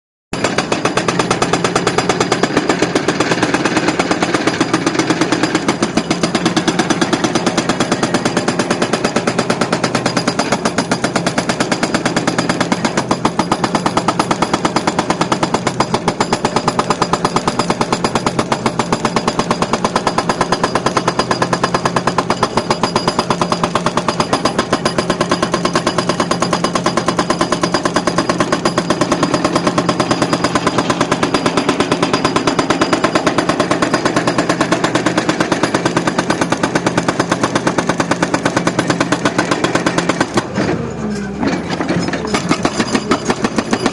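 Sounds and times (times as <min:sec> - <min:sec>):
hydraulic breaker hammer pounding: 0:00.4 - 0:43.9
excavator engine hum: 0:40.2 - 0:43.9.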